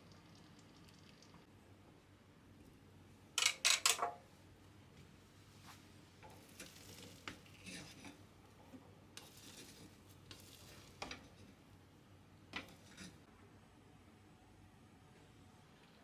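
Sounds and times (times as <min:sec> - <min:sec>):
utensil scraping in pot: 0:06.2 - 0:11.6, 0:12.6 - 0:13.2.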